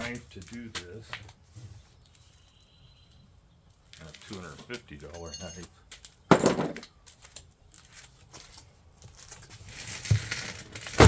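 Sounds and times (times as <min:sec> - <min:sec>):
cardboard box crinkling and tearing: 0:09.1 - 0:11.0.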